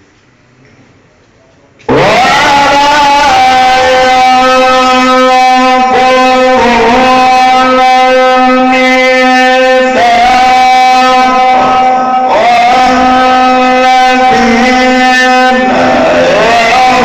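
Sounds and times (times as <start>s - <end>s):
man chanting: 1.8s - 17.0s.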